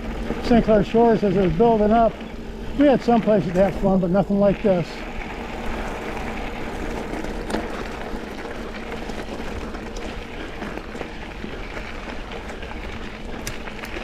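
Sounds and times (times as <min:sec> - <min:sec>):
bike tyres rolling on dirt: 0:00.0 - 0:14.0
small clicks and rattles: 0:05.8 - 0:14.0.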